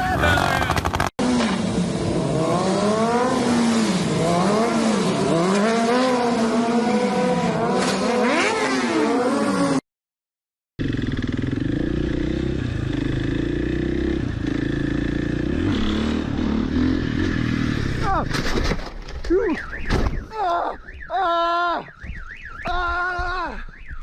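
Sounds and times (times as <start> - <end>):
motorcycle engine revving: 0.0 - 9.8, 10.8 - 18.3.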